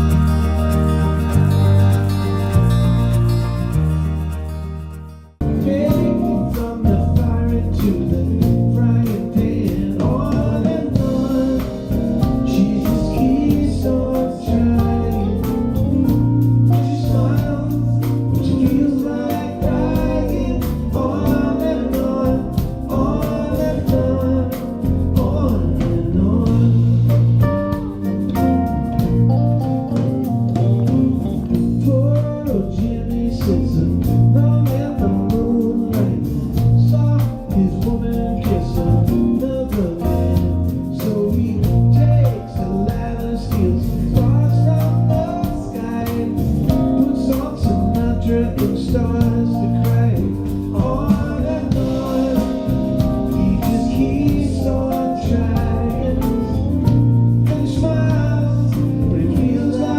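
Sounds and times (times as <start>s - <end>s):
soft-rock band with singer: 0.0s - 59.9s.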